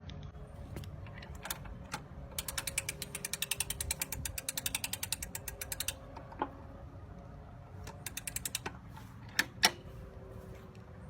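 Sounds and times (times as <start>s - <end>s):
lawn mower ratchet clicking: 0.7s - 6.5s, 7.8s - 9.9s.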